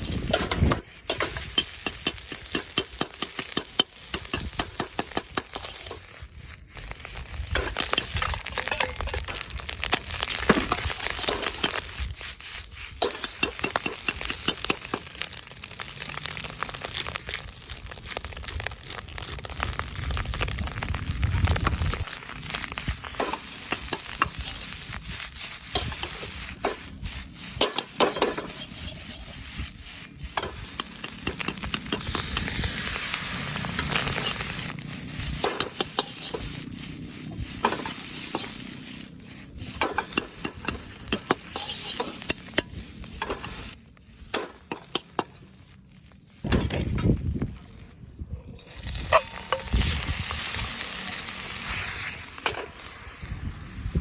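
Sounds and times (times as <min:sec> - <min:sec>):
food sizzling in a wok: 0:00.0 - 0:46.4, 0:48.6 - 0:54.0
utensil scraping a pan: 0:07.6 - 0:09.5, 0:10.2 - 0:15.0, 0:23.1 - 0:33.0, 0:33.6 - 0:43.8, 0:48.6 - 0:50.2.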